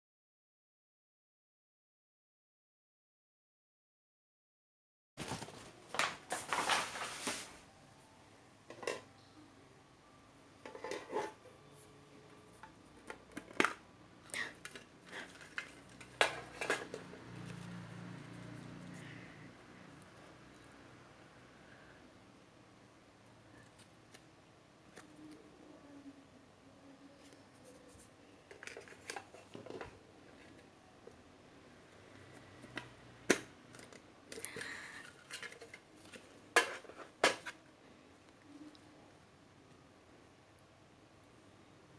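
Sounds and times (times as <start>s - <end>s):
packaging clicks and rustles: 5.2s - 7.7s, 13.0s - 18.6s
faint low hum: 5.2s - 41.9s
cd case clicks: 13.0s - 13.8s.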